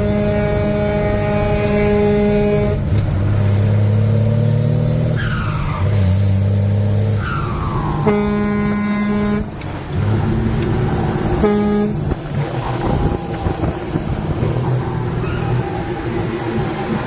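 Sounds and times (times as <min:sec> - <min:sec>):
vehicle horn blast: 0:00.0 - 0:02.8, 0:08.0 - 0:09.6, 0:11.3 - 0:13.7
road noise: 0:00.0 - 0:17.0
vehicle engine rumble: 0:00.0 - 0:17.0.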